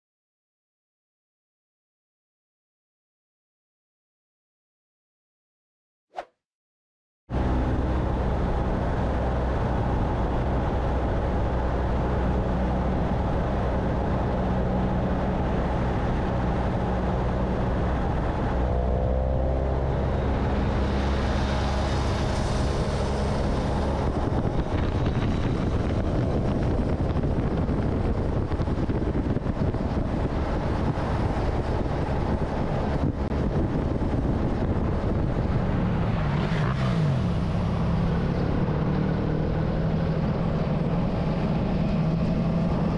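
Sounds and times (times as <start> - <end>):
rushing noise: 18.7 - 42.9.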